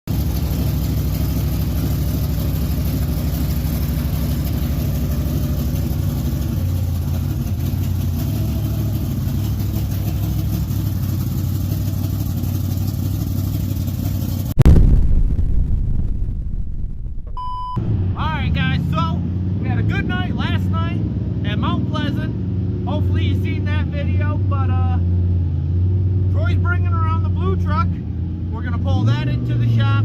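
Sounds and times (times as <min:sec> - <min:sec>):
vehicle engine idling: 0:00.1 - 0:14.6.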